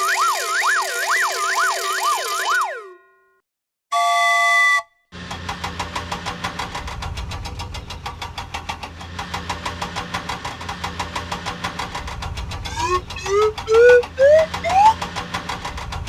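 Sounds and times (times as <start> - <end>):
cartoon engine hum with ticking: 5.2 - 16.0
rising whistle-like tones: 12.7 - 15.0.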